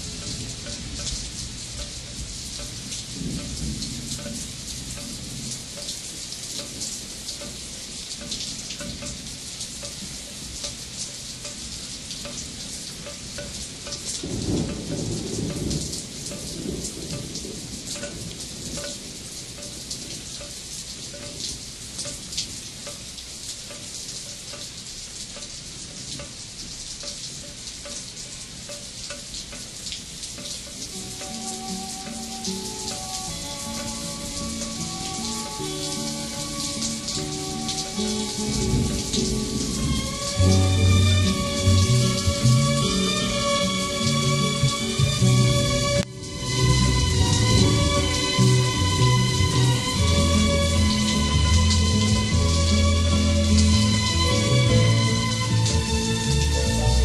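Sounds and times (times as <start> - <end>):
rain falling: 0.0 - 57.0
low thunder rolls: 3.0 - 5.7, 14.2 - 20.4.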